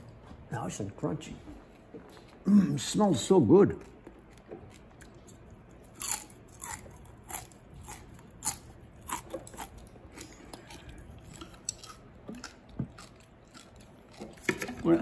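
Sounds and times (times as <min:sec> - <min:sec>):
person chewing crisp fried fish: 0:03.7 - 0:14.9.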